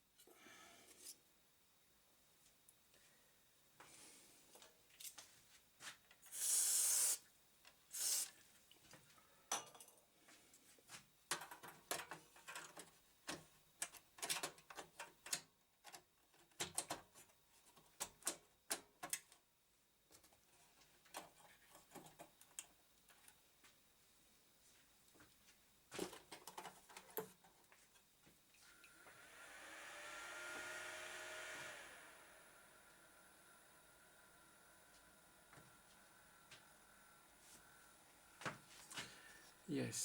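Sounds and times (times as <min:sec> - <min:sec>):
short hissing burst: 0:06.3 - 0:07.3, 0:07.9 - 0:08.4
clicks and clatter of computer parts: 0:11.3 - 0:19.4, 0:21.1 - 0:23.3, 0:26.0 - 0:27.6.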